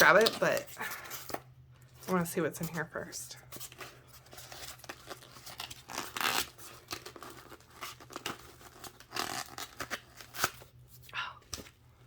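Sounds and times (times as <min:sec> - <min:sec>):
packaging tearing and crinkling: 0:04.2 - 0:10.8.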